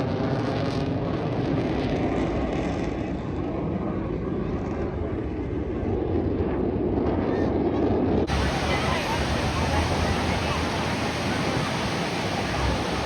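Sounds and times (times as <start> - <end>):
jet engine noise: 8.3 - 13.0.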